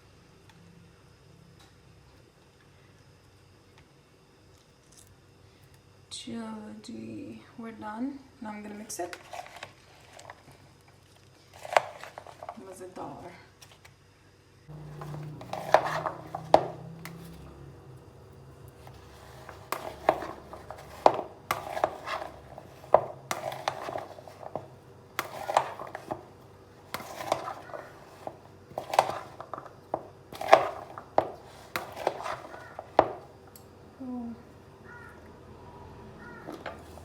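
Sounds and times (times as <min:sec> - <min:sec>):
kitchen utensils knocking and clinking: 0:14.7 - 0:17.7, 0:18.8 - 0:33.4.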